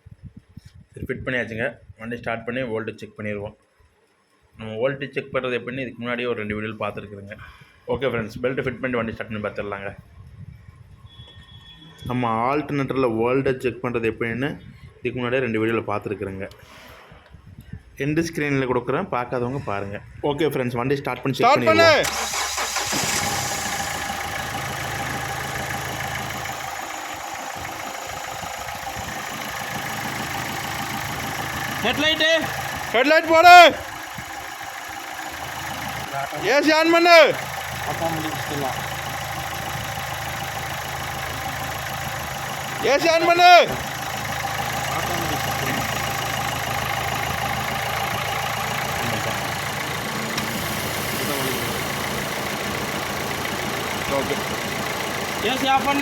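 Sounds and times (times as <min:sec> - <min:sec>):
car engine idling: 0:21.6 - 0:56.0.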